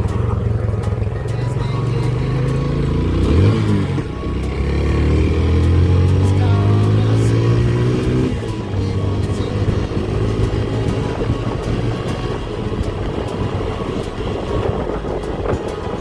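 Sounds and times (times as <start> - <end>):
motorcycle engine rumble: 0.0 - 16.0
road noise: 0.0 - 16.0
wind noise: 11.0 - 16.0.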